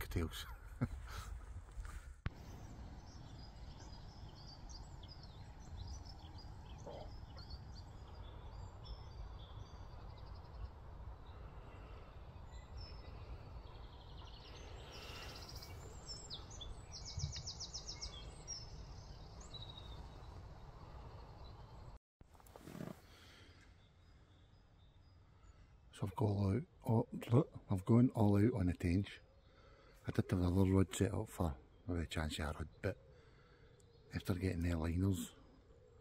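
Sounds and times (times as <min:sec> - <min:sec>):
small birds chirping: 0:00.0 - 0:36.0
low outdoor rumble: 0:02.3 - 0:16.8.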